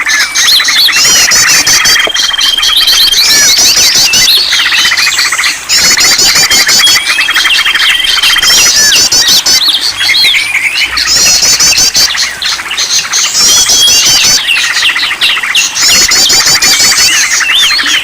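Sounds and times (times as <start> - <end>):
songbirds calling: 0.0 - 18.0.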